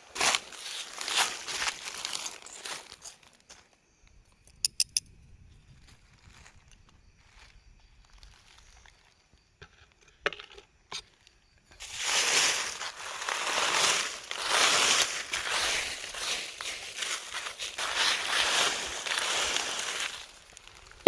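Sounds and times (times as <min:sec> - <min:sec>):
crunching rustling noise: 0:00.0 - 0:03.8, 0:05.6 - 0:09.4, 0:11.2 - 0:21.0
sharp clicks: 0:04.4 - 0:05.2.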